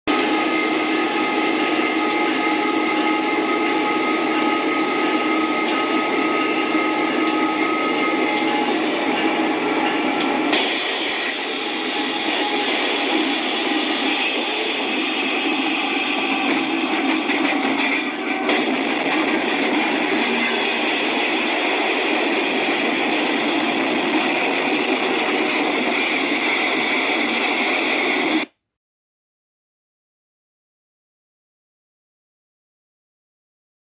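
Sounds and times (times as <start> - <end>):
train running: 0.1 - 28.5
whining tones: 0.1 - 28.5
sudden sharp sound: 3.3 - 27.2.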